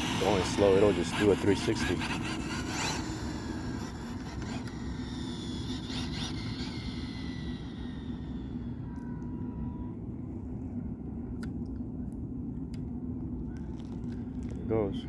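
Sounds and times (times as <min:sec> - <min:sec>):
electric motor whining: 0:00.0 - 0:09.6.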